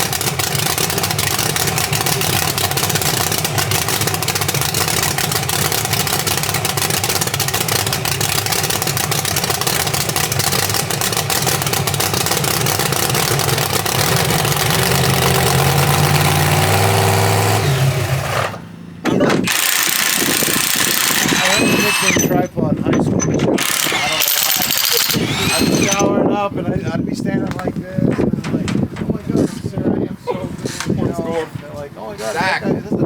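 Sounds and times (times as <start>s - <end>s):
large engine revving: 0.0s - 18.7s, 23.5s - 26.0s.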